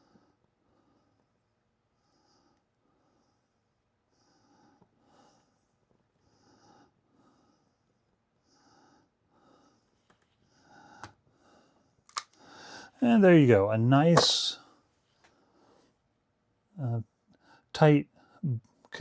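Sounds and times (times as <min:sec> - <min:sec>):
soft breathing: 0:00.0 - 0:13.0.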